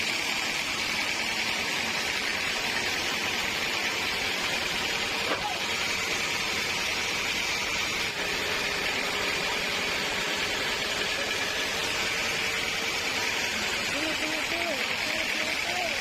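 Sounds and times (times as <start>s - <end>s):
sawmill machinery running: 0.0s - 16.0s.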